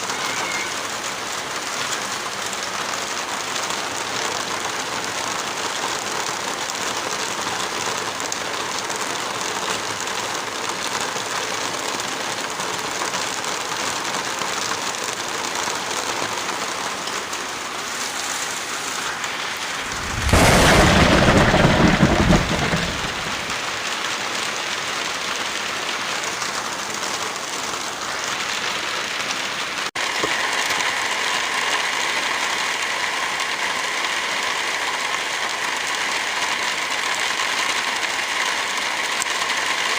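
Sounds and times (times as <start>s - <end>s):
heavy rain hissing: 0.0s - 39.9s
loud thunderclap: 19.6s - 23.9s.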